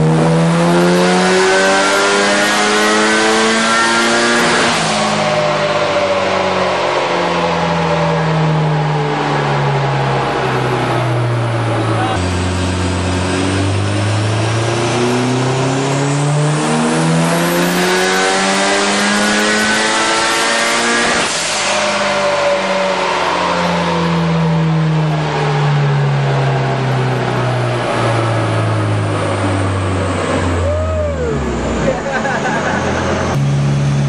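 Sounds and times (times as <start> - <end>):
car engine revving on a dyno: 0.0 - 34.0.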